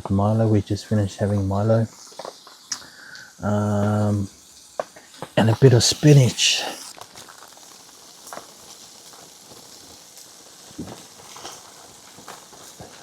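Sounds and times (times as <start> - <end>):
food sizzling in a pan: 0.2 - 13.0
utensil clicks and scrapes: 5.2 - 8.4.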